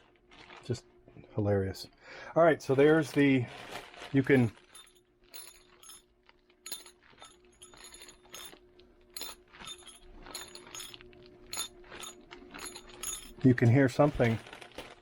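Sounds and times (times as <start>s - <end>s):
metal part clinking in plastic bag: 4.1s - 15.0s.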